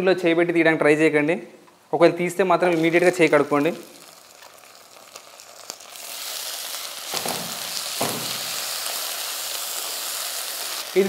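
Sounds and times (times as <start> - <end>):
onions sizzling in pan: 2.6 - 11.0
knocks on pan: 7.2 - 8.5.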